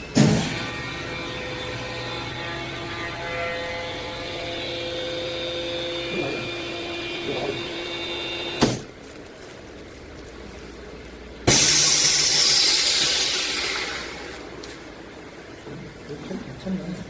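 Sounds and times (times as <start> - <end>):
vacuum pump humming: 0.0 - 17.0
sharp burst of air noise: 11.4 - 14.6.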